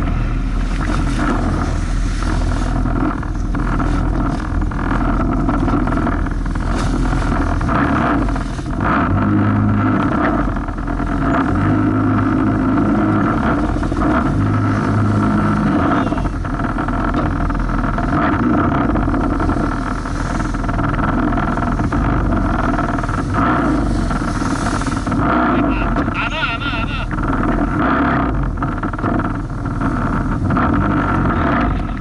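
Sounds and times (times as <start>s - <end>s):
jet ski engine running: 0.0s - 32.0s
rush of wind and water: 0.0s - 32.0s.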